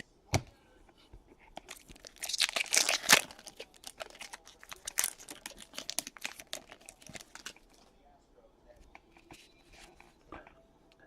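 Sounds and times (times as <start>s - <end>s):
foil wrapper tearing and crinkling: 1.6s - 7.8s.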